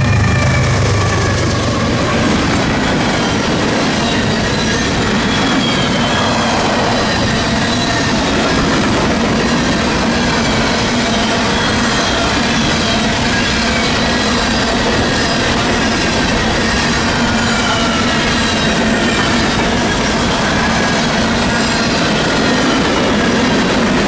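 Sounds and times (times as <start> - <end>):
faint wheel squeal: 0.0 - 8.2
wheels clacking over rail joints: 0.0 - 24.0.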